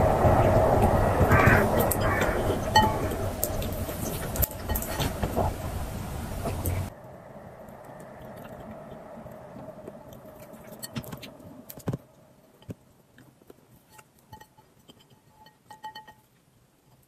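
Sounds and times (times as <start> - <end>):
steady background hum: 0.0 - 13.4
chewing and mouth noises: 7.7 - 12.0.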